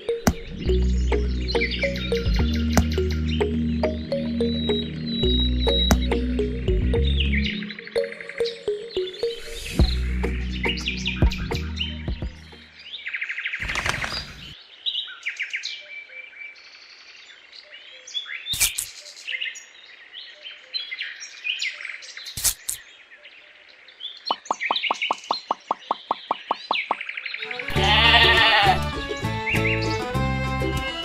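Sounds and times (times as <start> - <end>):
small birds chirping: 0.0 - 30.2
sharp knocks: 5.8 - 6.2.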